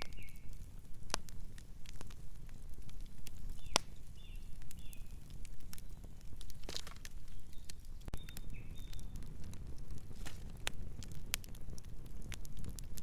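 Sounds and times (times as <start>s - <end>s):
bird chirp: 0.0s - 0.5s, 3.6s - 5.2s, 7.2s - 9.2s
wood fire crackling and popping: 0.0s - 13.0s.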